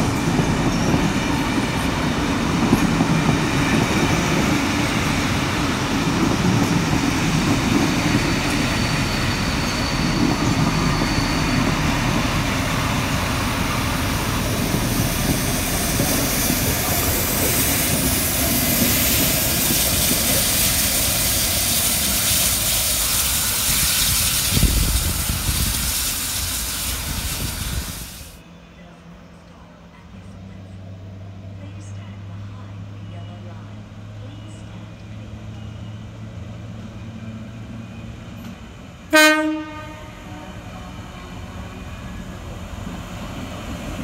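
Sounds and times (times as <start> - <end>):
train wheels rumbling on track: 0.0 - 44.0
hiss: 13.9 - 28.4.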